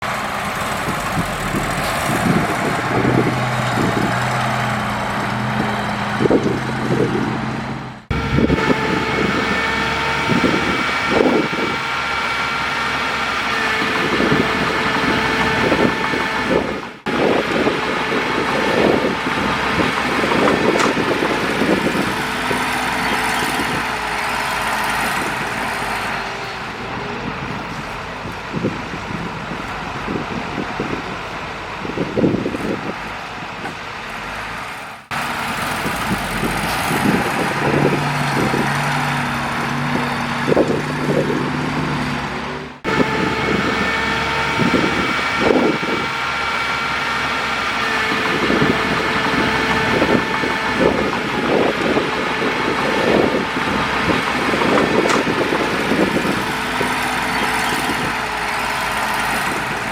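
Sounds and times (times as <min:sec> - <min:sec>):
heavy diesel machinery running: 0:00.0 - 0:59.9
knocks and clanks: 0:52.6 - 0:58.2.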